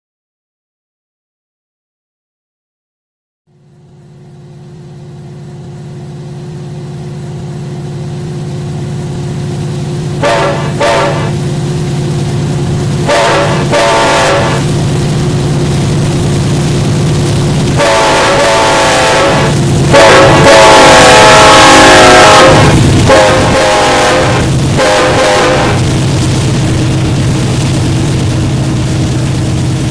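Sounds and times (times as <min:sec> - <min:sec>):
diesel locomotive engine drone: 0:03.5 - 0:29.9
locomotive air horn blasts: 0:10.1 - 0:11.6, 0:12.7 - 0:15.0, 0:17.6 - 0:26.1.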